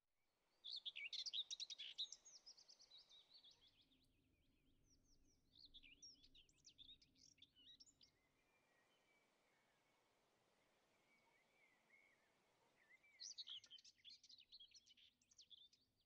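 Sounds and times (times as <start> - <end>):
bird chirping and twittering: 0.6 - 3.8, 11.1 - 15.8.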